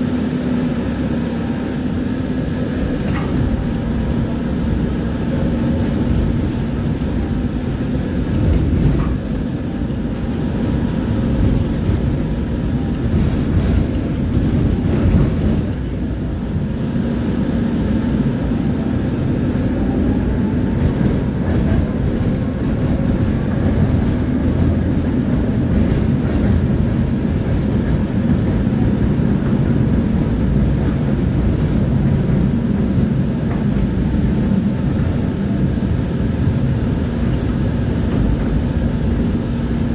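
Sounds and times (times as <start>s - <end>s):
tram wheels rumbling on rails: 0.0s - 39.9s
clicks and clacks: 2.9s - 3.7s, 8.3s - 10.0s, 12.9s - 15.8s, 20.8s - 35.3s.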